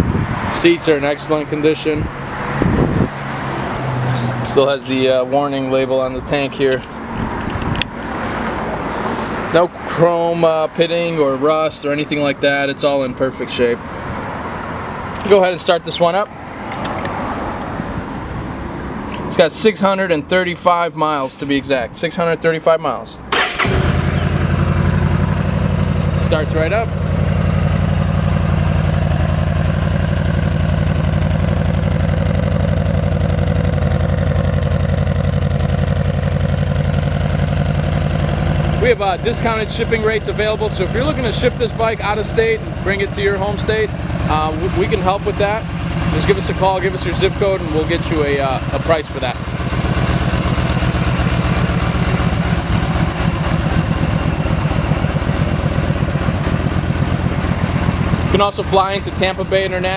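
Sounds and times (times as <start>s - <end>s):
motorcycle engine idling: 23.3s - 59.9s.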